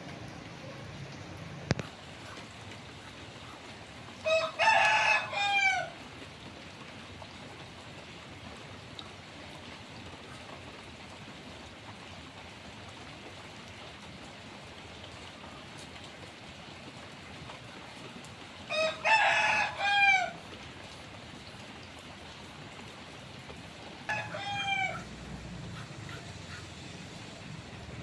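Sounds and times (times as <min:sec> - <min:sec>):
steady rain: 0:00.0 - 0:28.0
rooster crowing: 0:04.2 - 0:06.0, 0:18.7 - 0:20.4, 0:24.0 - 0:26.7.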